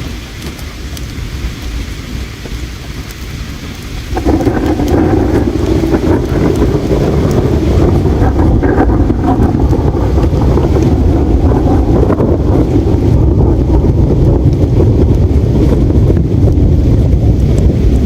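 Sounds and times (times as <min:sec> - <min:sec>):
campfire crackling: 0:00.0 - 0:18.0
low rushing noise: 0:03.8 - 0:18.0.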